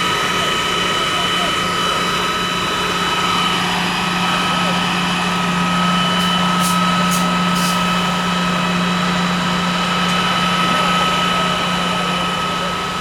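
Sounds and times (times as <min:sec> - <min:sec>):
fire engine pump droning: 0:00.0 - 0:13.0
hiss: 0:06.2 - 0:08.0.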